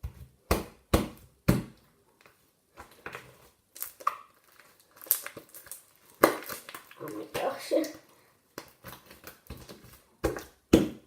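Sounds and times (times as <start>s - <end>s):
slime squishing with wet pops: 0.0s - 11.0s.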